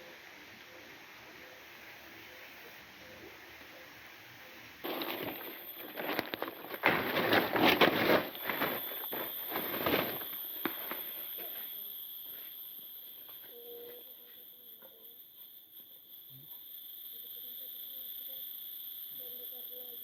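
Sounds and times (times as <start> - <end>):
high insect buzz: 0.0 - 20.0
crunching of leaf litter: 4.8 - 11.1.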